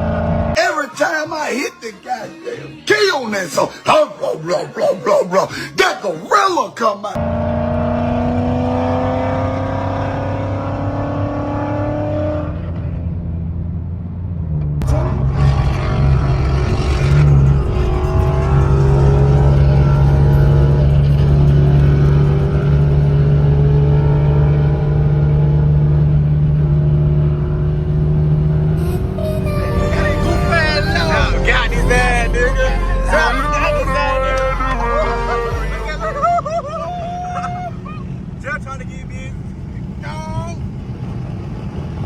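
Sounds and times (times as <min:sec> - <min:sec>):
car engine accelerating: 0:00.0 - 0:00.6, 0:07.2 - 0:42.0
steady low drone: 0:13.8 - 0:42.0.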